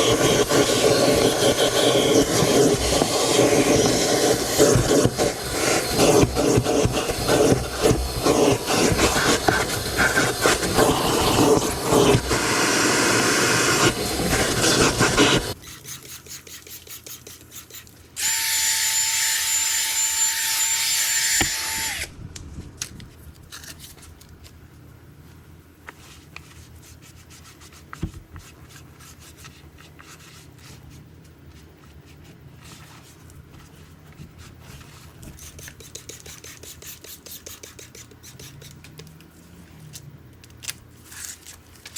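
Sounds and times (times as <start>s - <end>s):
brushing and rubbing: 0.0s - 18.0s, 25.9s - 38.8s
small motor whirring: 18.2s - 22.1s.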